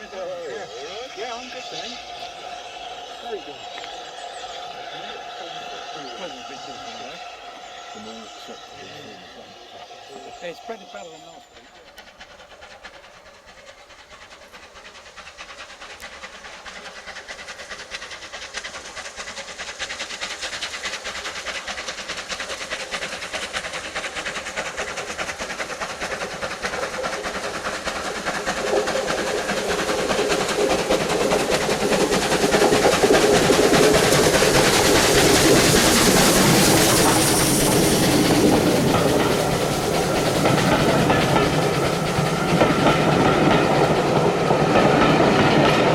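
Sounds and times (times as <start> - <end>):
steam train passing on rails: 0.0 - 45.9.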